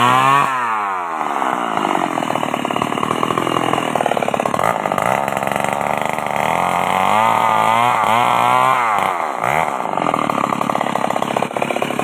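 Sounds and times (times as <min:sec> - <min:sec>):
chainsaw running at high revs: 0:00.0 - 0:12.0.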